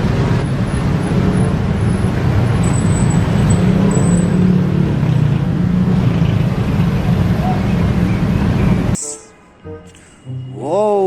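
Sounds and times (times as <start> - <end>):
bus engine running: 0.0 - 10.6.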